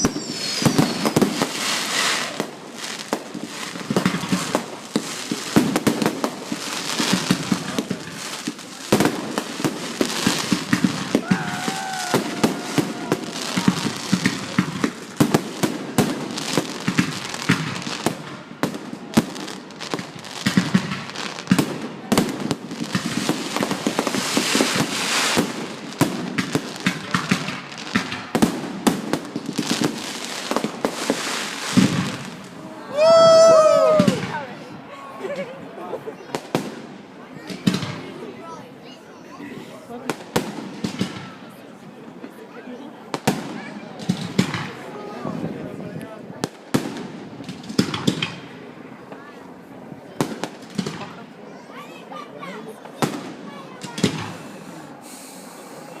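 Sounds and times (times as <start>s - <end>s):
wavering firework whistle: 0.0s - 1.4s
fireworks bangs and crackling: 0.0s - 56.0s.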